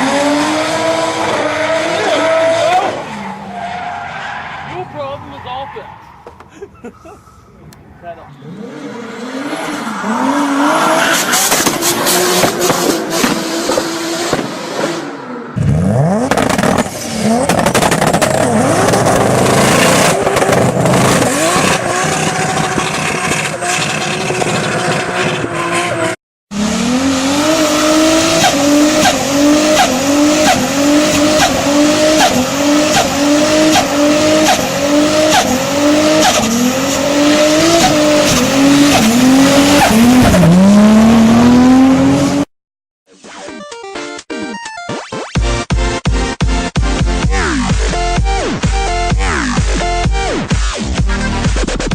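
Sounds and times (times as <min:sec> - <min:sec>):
car engine revving: 0:00.0 - 0:06.4, 0:07.0 - 0:42.5.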